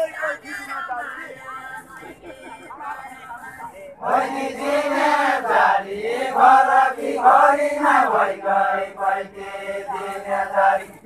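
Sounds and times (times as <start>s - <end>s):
men singing together: 4.0s - 11.0s.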